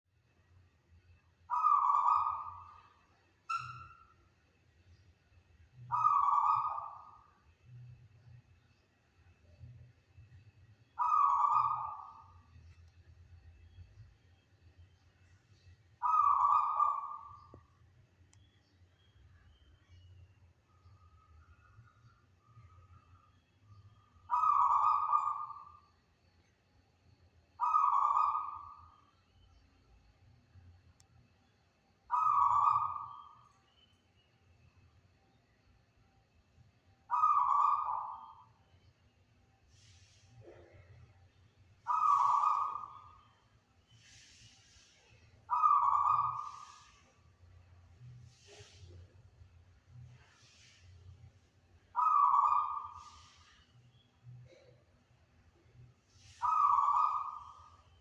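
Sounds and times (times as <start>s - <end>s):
dove cooing: 11.0s - 12.2s, 16.0s - 17.3s, 27.6s - 28.7s, 37.1s - 38.3s, 41.9s - 43.0s, 45.5s - 46.9s, 52.0s - 53.4s, 56.4s - 57.4s.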